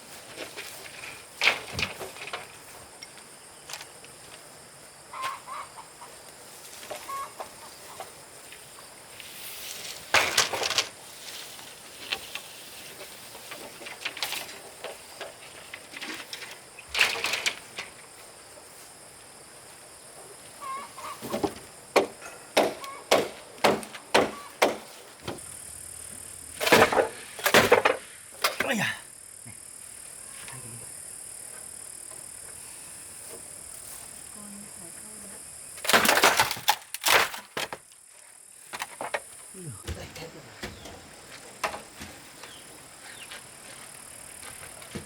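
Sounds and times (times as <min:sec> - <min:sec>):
chickens clucking: 0:05.1 - 0:06.2, 0:06.9 - 0:08.2, 0:20.6 - 0:21.5
sharp knocks and bangs: 0:21.2 - 0:25.4.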